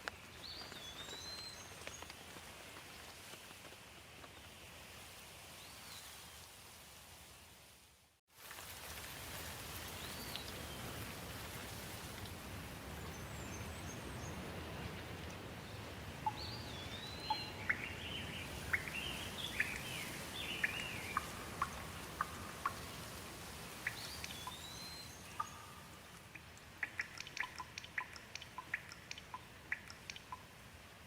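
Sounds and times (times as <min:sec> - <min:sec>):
steady rain: 0:00.0 - 0:31.0
sharp ticks: 0:25.4 - 0:30.5.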